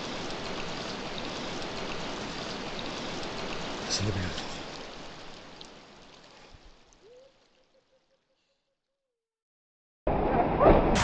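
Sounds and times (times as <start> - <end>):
stream water flowing: 0.0 - 8.6.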